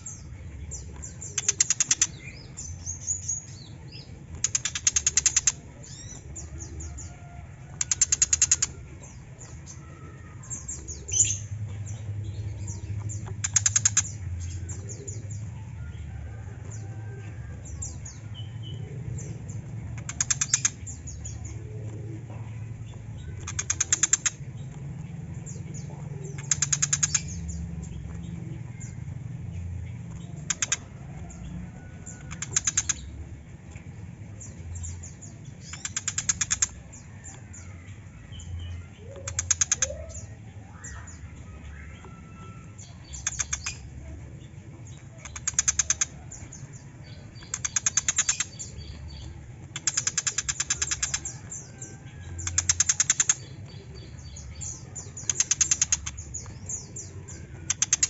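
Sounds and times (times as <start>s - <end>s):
low background hum: 0.0s - 58.0s
bird harsh rattling calls: 49.7s - 53.7s.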